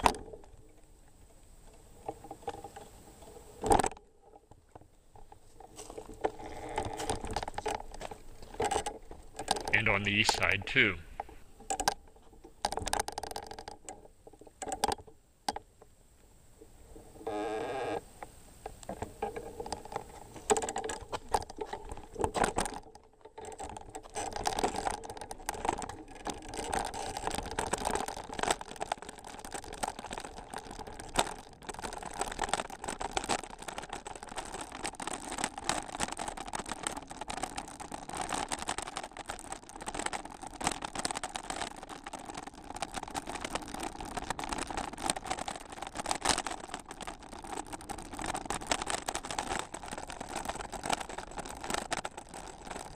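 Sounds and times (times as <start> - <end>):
bicycle clicks and rattles: 0.0 - 9.7, 11.2 - 15.7, 18.7 - 52.9
bicycle tyres crunching gravel: 5.0 - 9.5, 23.5 - 52.9.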